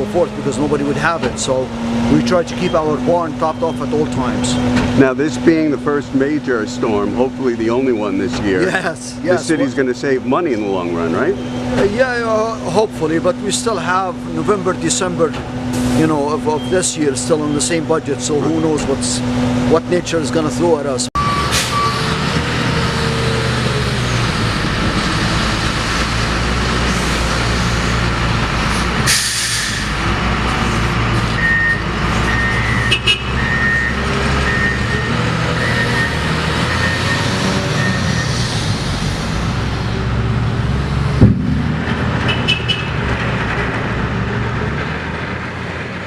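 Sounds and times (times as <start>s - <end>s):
diesel trucks running: 0.0s - 46.0s
reversing beeps: 11.2s - 11.8s, 21.2s - 22.0s, 31.4s - 38.3s
air brake hiss: 29.1s - 29.9s
sharp knock: 41.2s - 42.9s.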